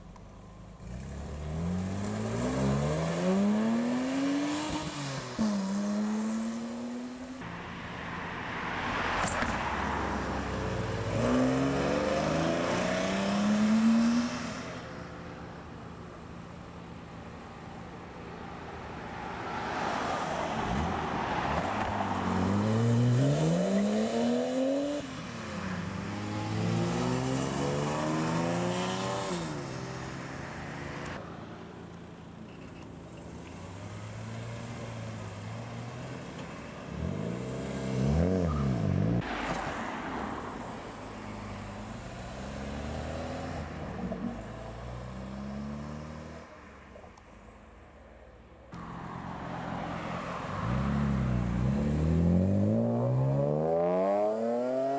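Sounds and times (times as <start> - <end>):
cars accelerating away: 10.7 - 14.7, 19.6 - 30.1, 48.8 - 54.9
engine revving: 50.6 - 54.9.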